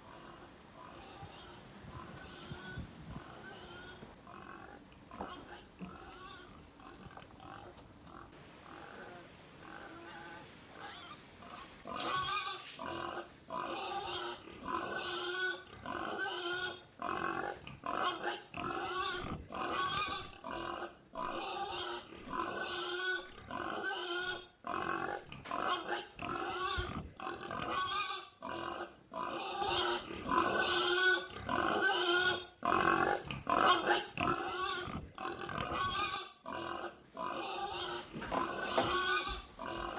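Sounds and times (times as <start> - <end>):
pig-like squealing and grunting: 11.9 - 39.9.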